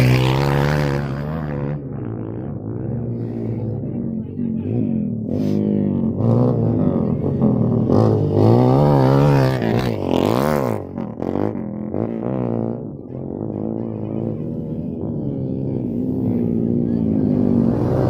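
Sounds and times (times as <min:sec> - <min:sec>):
dirt bike engine revving: 0:04.7 - 0:18.0.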